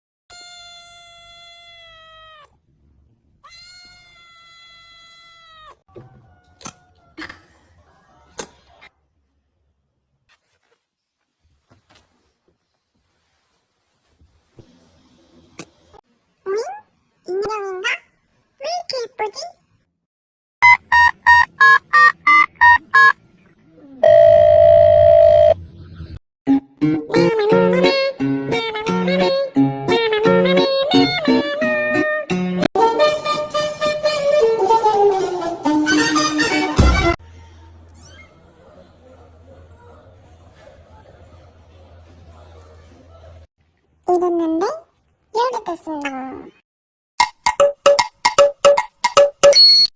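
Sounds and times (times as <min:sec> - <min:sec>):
cat meowing: 0:00.3 - 0:02.6, 0:03.4 - 0:05.8
short electronic beeps: 0:20.6 - 0:23.3, 0:49.4 - 0:49.9.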